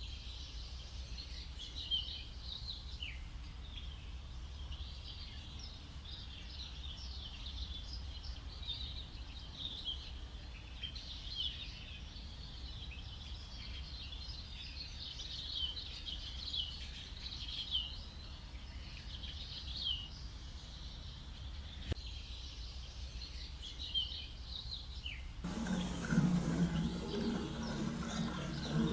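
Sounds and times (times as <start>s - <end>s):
low steady rumble: 25.4s - 28.9s.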